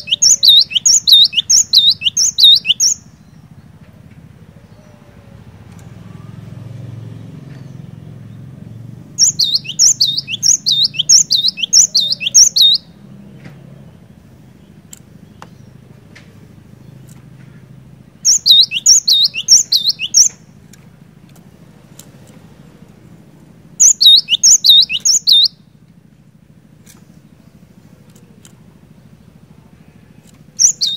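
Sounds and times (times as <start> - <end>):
bird singing whistled notes: 0.0 - 3.4, 7.6 - 13.0, 18.2 - 20.5, 23.8 - 25.7, 30.5 - 30.9.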